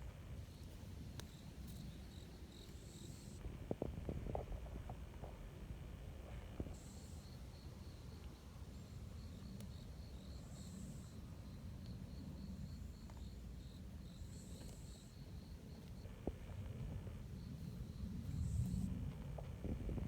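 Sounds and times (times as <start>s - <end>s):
faint low rumble: 0.0s - 20.0s
insect chirping in pulses: 1.3s - 3.4s.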